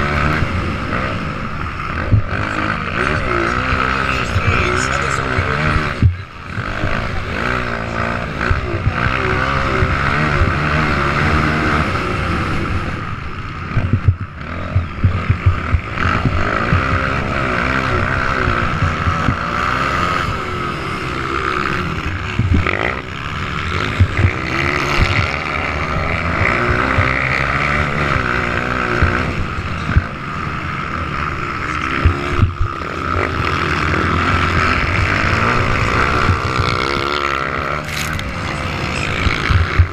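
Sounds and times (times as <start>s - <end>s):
motocross bike engines revving: 0.0s - 39.9s
sharp thumps: 2.0s - 2.4s, 13.7s - 17.4s, 22.1s - 23.2s, 23.9s - 25.4s.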